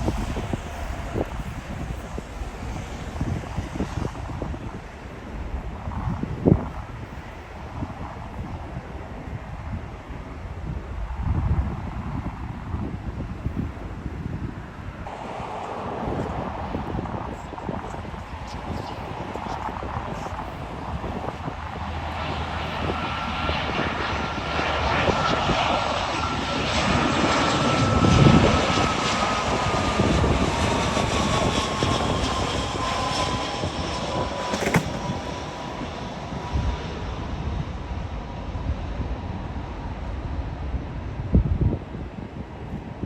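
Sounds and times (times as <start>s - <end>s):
falling engine whine: 0.0s - 7.1s
jet airliner passing overhead: 0.0s - 43.0s.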